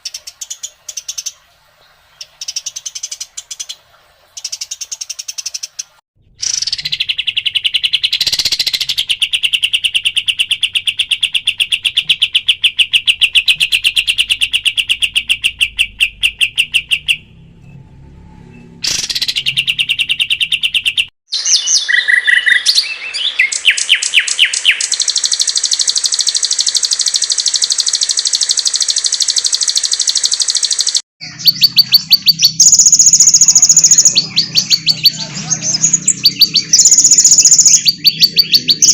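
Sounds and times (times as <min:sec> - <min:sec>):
chattering bird trills: 0:06.4 - 0:17.3, 0:31.2 - 0:38.9.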